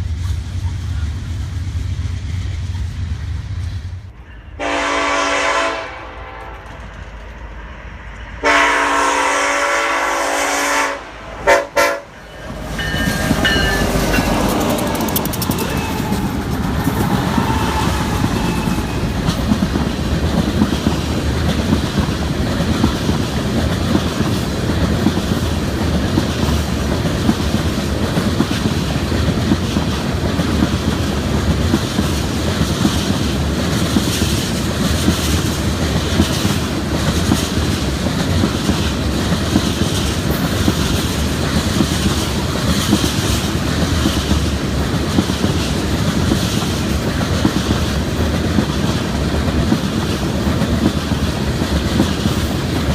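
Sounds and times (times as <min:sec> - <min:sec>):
freight train cars rolling past: 0:00.0 - 0:52.9
wheels clicking over rail joints: 0:12.4 - 0:52.9.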